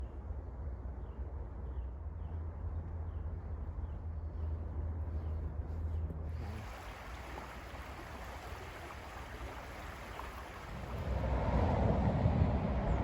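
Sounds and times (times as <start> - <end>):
steady low rumble: 10.7 - 13.0.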